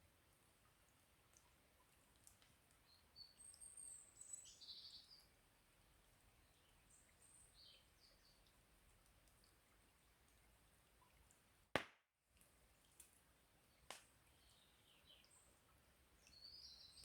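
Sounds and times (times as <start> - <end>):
faint songbird chirps: 2.7 - 5.4, 6.4 - 8.6, 13.6 - 17.0.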